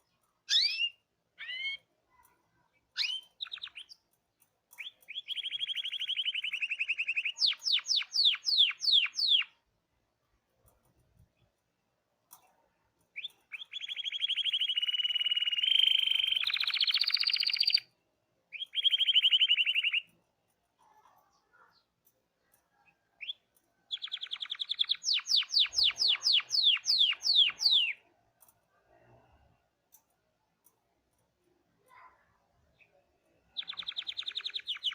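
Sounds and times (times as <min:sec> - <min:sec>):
canary singing trills: 0:00.0 - 0:02.3, 0:02.9 - 0:04.1, 0:04.7 - 0:09.6, 0:13.2 - 0:17.9, 0:18.5 - 0:20.1, 0:23.2 - 0:28.1, 0:32.8 - 0:34.9.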